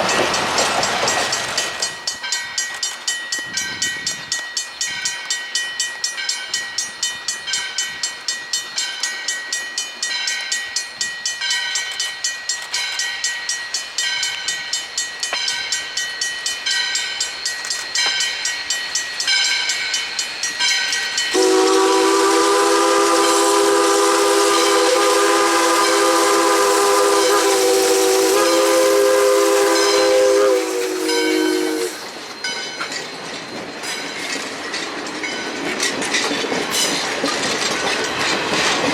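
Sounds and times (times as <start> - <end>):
bell ringing: 0.0 - 21.7, 29.7 - 35.6
steam locomotive chime whistle: 0.0 - 34.1
train rolling past: 0.0 - 38.9.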